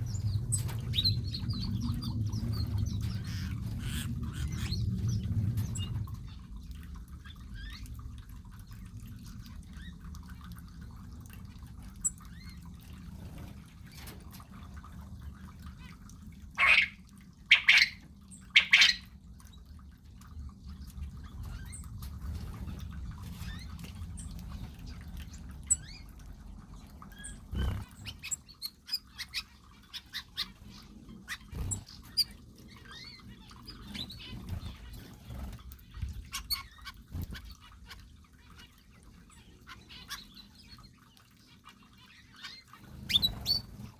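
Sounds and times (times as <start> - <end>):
birds calling and chirping: 0.0 - 8.1, 11.8 - 19.2, 20.8 - 43.9
low background rumble: 0.0 - 42.2
loud bird calls: 16.6 - 18.0.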